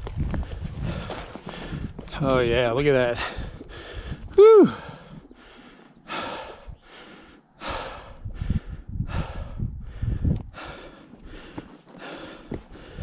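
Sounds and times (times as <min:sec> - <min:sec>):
footsteps: 0:00.0 - 0:02.5, 0:11.0 - 0:13.0
person breathing hard: 0:00.4 - 0:02.0, 0:03.2 - 0:13.0.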